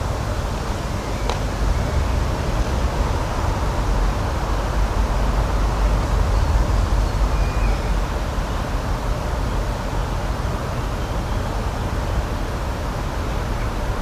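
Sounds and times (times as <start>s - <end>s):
continuous rushing noise: 0.0s - 14.0s.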